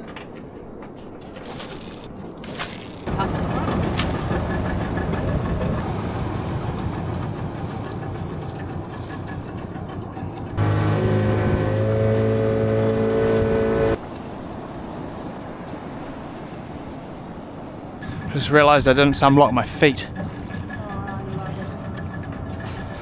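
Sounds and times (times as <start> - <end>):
water noise: 0.0 - 23.0
wind: 0.0 - 23.0
boat engine running: 3.1 - 14.0, 18.0 - 23.0.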